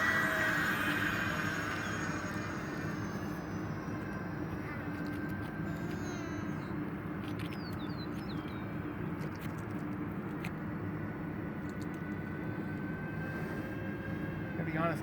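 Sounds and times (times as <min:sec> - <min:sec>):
electric ducted fans whining: 0:00.0 - 0:15.0
bird chirping: 0:05.9 - 0:08.8.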